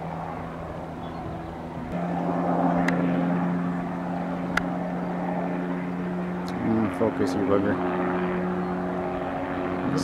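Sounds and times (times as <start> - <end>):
helicopter flying overhead: 0.0 - 10.0.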